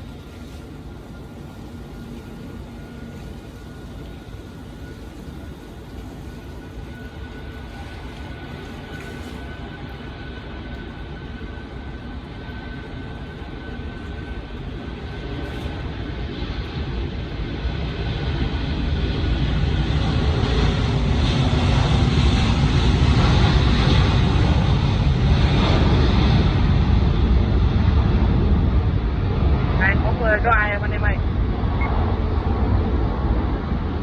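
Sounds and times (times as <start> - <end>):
faint high whine: 0.0 - 20.8, 29.9 - 34.0
jet engines roaring: 0.0 - 34.0.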